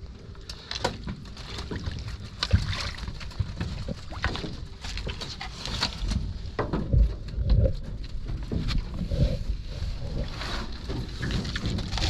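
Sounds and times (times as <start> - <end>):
water splashing around rowboat: 0.6 - 12.0
low rumble: 5.8 - 12.0.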